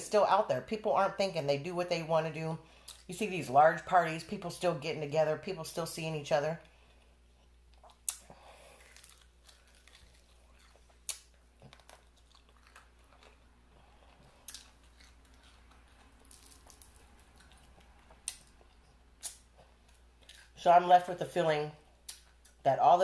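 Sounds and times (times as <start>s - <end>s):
soft wet chewing: 6.6s - 20.6s.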